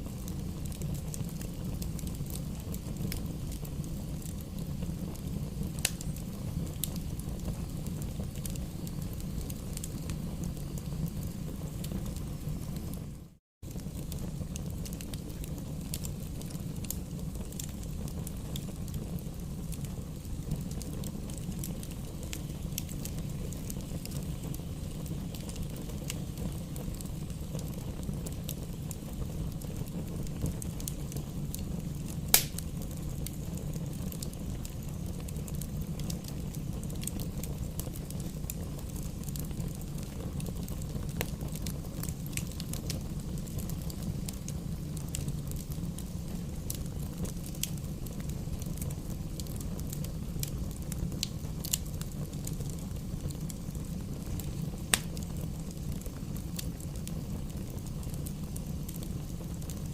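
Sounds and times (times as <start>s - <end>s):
campfire crackling: 0.0s - 59.9s
loud fire pop: 32.3s - 32.7s.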